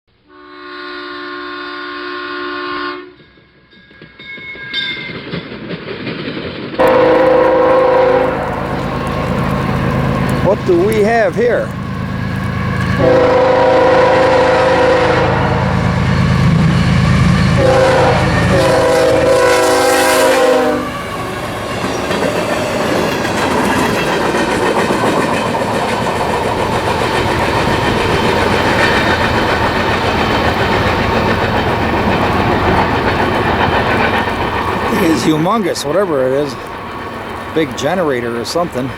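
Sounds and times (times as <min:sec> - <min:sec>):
locomotive air horn blasts: 0:00.2 - 0:03.2, 0:06.8 - 0:21.2
train wheels clattering on rails: 0:03.1 - 0:13.4, 0:15.1 - 0:38.9
diesel engine rumble: 0:06.8 - 0:19.4.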